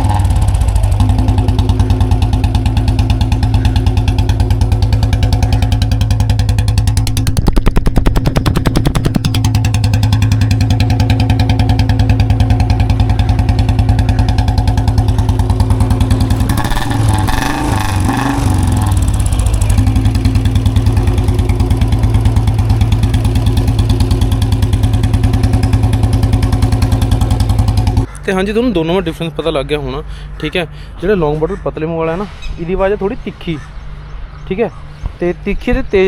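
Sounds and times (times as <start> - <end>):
motorcycle engine exhaust beat: 0.0 - 28.5.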